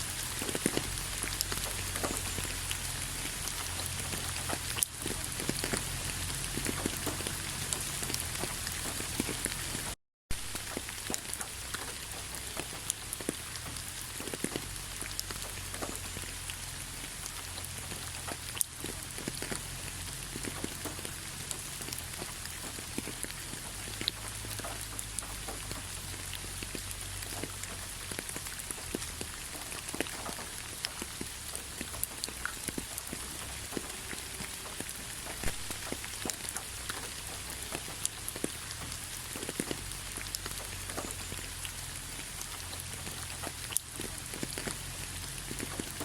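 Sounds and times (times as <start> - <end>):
light rain pattering: 0.0 - 46.0.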